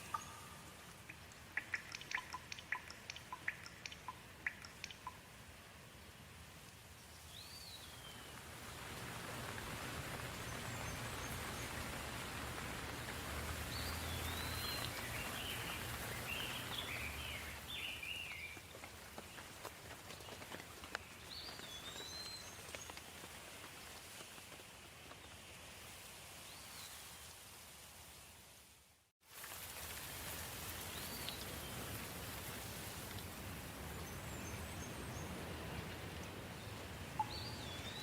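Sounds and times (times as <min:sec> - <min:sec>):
bird chirping: 0:00.0 - 0:05.3, 0:13.7 - 0:18.6, 0:36.6 - 0:38.0
soft rain falling: 0:00.0 - 0:38.0.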